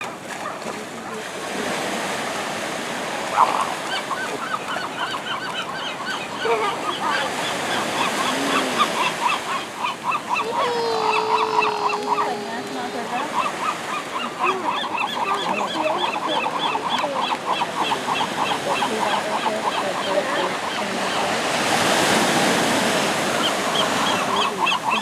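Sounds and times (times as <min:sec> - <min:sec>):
gulls calling: 0:00.1 - 0:25.0
surf hissing: 0:01.2 - 0:04.6, 0:06.4 - 0:15.9.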